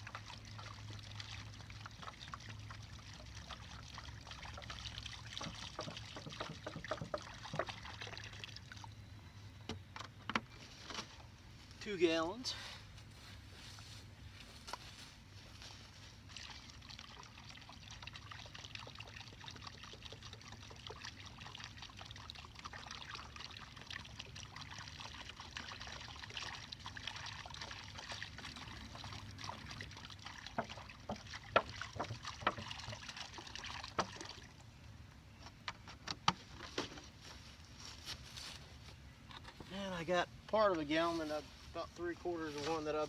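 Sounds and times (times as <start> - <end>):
water pouring from a jug: 0.0 - 9.0, 15.9 - 34.8
sharp knocks and taps: 5.4 - 7.7.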